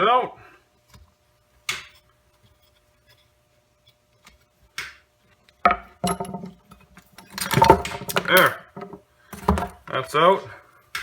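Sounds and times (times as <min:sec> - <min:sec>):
metallic knocks and clinks: 0:05.7 - 0:10.1.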